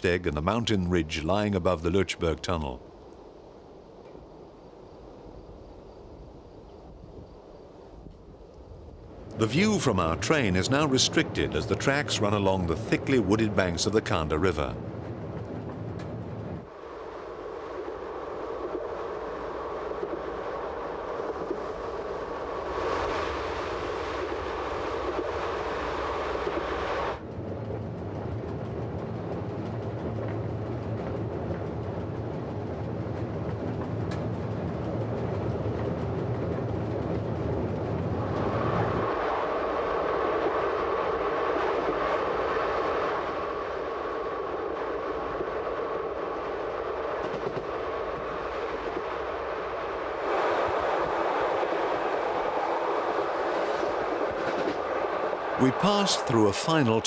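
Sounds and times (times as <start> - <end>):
train wheels rumbling on rail: 9.2 - 16.7, 26.3 - 39.1, 46.6 - 55.5.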